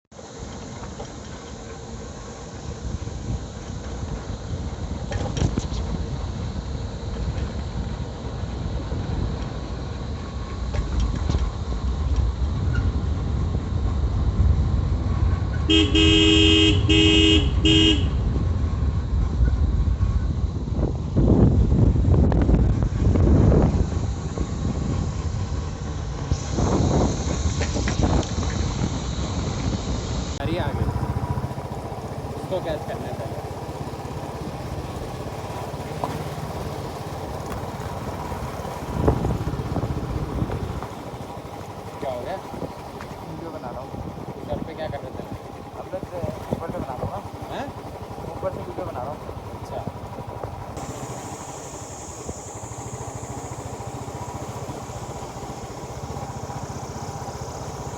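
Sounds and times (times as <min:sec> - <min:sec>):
low riding rumble: 0:00.1 - 0:57.9
motorcycle engine running: 0:00.2 - 0:57.9
vehicle horn honking: 0:15.7 - 0:18.4.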